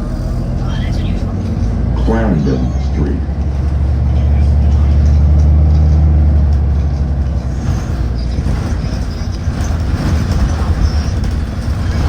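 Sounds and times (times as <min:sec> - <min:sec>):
bus engine drone: 0:00.0 - 0:12.0
road rumble: 0:00.0 - 0:12.0.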